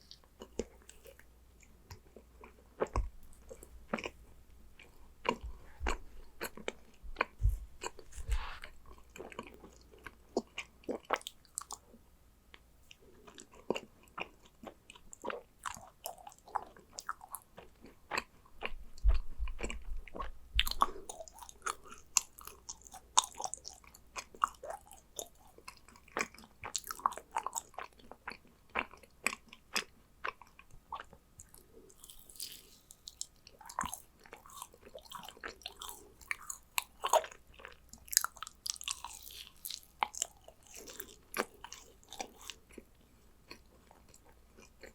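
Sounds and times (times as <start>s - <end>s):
chewing and biting cookie: 0.0s - 4.2s, 4.8s - 11.9s, 12.5s - 44.9s
low thumps: 7.0s - 8.7s.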